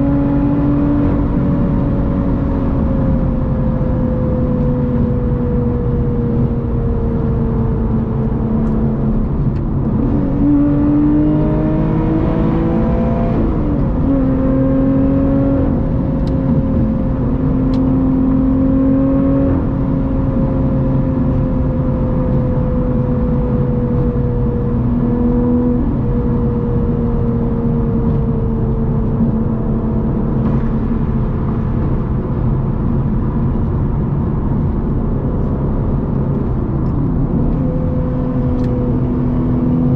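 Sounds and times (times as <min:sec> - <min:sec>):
car engine at highway speed: 0:00.0 - 0:39.9
tyre and road noise: 0:23.9 - 0:39.9.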